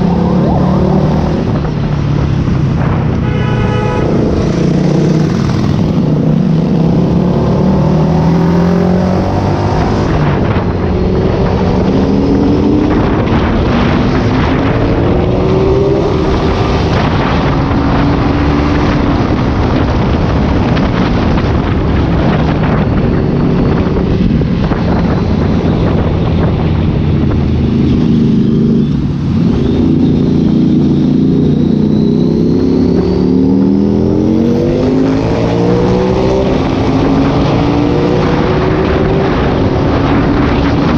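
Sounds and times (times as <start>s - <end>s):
motorcycle engine accelerating: 0.0s - 3.2s, 4.0s - 40.9s.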